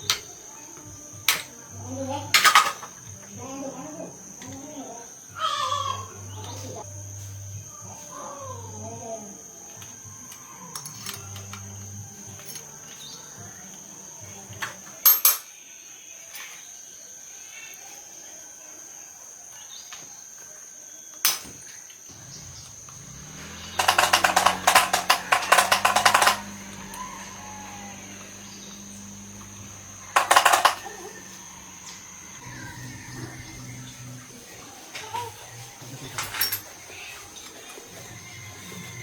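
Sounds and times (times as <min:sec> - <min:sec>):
metal parts clinking: 0:02.3 - 0:03.0, 0:10.7 - 0:13.0, 0:15.0 - 0:15.5, 0:22.9 - 0:27.7, 0:28.8 - 0:31.4, 0:36.1 - 0:36.7
rapid metallic rattling: 0:22.1 - 0:32.5.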